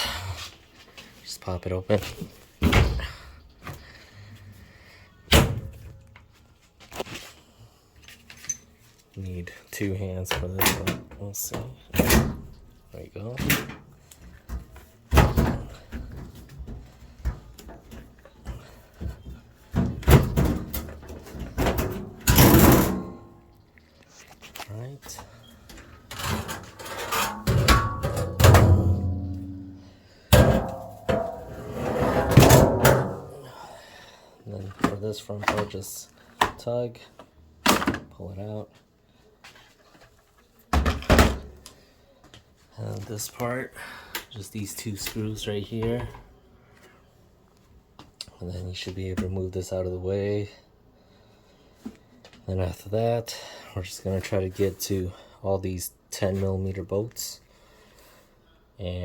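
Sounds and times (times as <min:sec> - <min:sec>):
loud thumps of washer panel: 0:27.3 - 0:29.6, 0:30.3 - 0:33.3
hollow bangs on sheet metal: 0:30.3 - 0:33.3.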